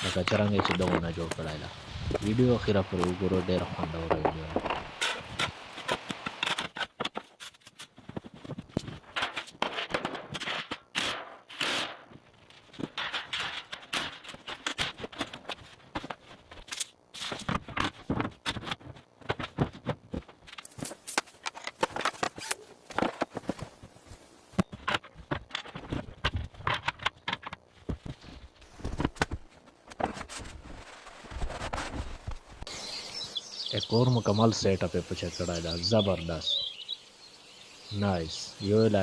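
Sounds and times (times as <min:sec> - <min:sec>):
sharp clicks and knocks: 0:24.6 - 0:28.2.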